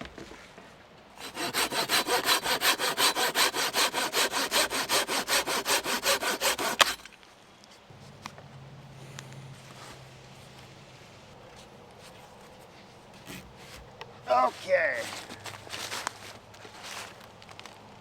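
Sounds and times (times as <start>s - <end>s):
hand saw cutting log: 1.2s - 7.1s.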